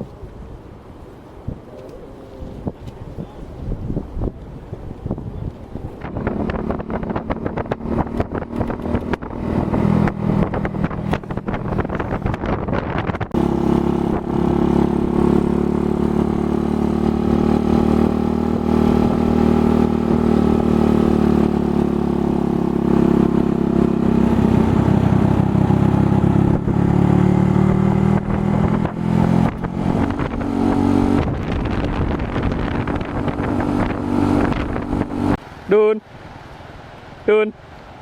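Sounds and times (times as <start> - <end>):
motorcycle engine running: 6.0 - 35.4.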